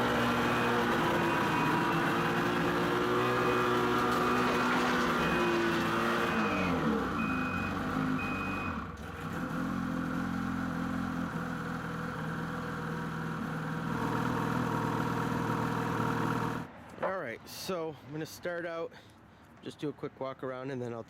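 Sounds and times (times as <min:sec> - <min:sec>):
snowmobile engine running: 0:00.0 - 0:08.7
short electronic beeps: 0:03.1 - 0:08.8.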